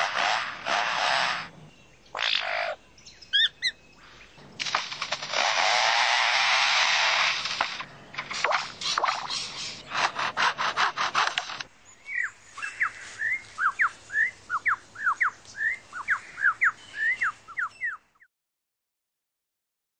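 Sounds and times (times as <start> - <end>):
lyrebird rasping like chainsaw: 0.0 - 2.8, 3.4 - 17.2
lyrebird whistled notes: 12.1 - 18.0.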